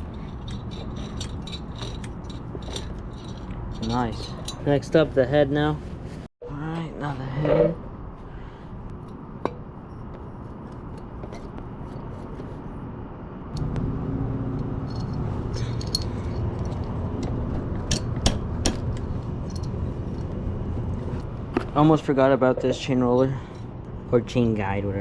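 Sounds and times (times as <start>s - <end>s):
metallic clicks and clinks: 0.0s - 4.8s, 14.8s - 20.4s
steady low rumble: 12.6s - 25.0s.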